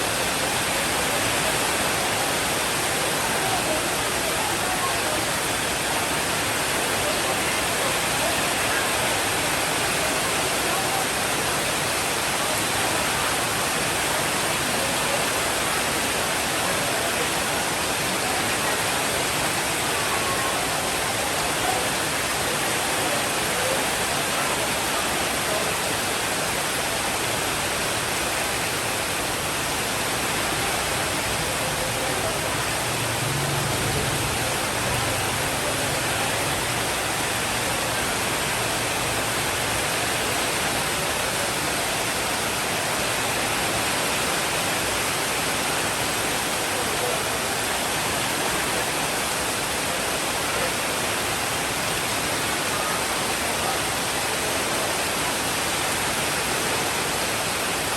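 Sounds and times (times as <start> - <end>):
heavy rain hissing: 0.0 - 57.9.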